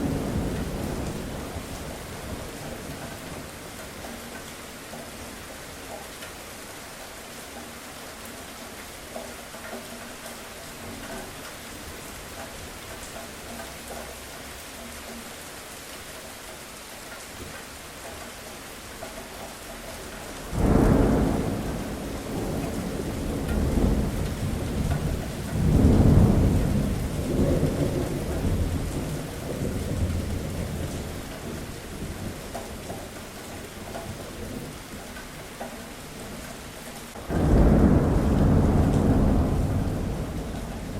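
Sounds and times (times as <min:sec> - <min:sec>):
steady rain falling: 0:00.0 - 0:40.9
thunder clap rumbling: 0:20.4 - 0:32.4, 0:37.1 - 0:40.9.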